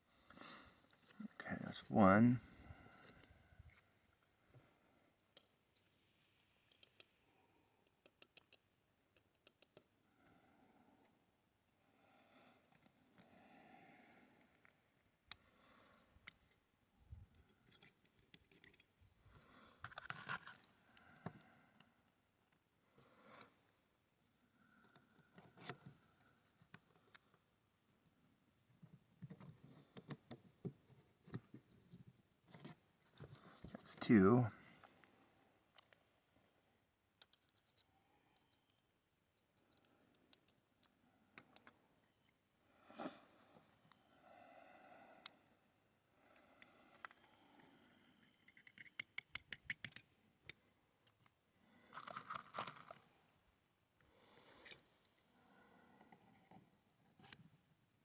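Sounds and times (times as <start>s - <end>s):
small clicks and handling noises: 3.0s - 7.2s, 7.8s - 10.0s, 14.3s - 15.5s, 16.2s - 22.6s, 24.3s - 27.5s, 28.7s - 33.8s, 34.8s - 36.2s, 37.0s - 42.4s, 46.5s - 47.4s, 48.2s - 53.1s, 54.0s - 55.4s, 56.0s - 57.6s.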